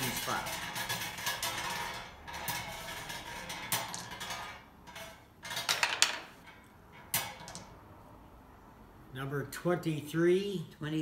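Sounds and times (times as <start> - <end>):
draw balls clicking and clattering: 0.0 - 7.8.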